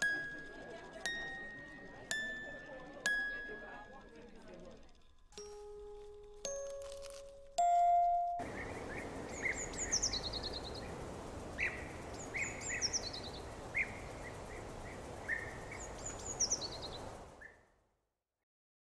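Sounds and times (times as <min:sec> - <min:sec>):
background hiss: 0:05.0 - 0:17.6
birds calling: 0:08.4 - 0:17.6.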